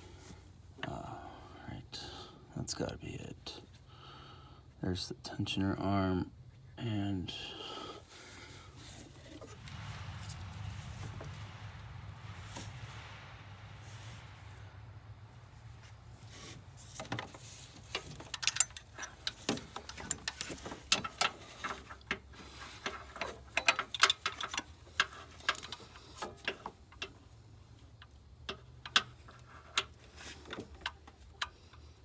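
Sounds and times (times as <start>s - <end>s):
low steady hum: 0.0s - 32.0s
ratcheting wrench clicking: 17.8s - 21.3s.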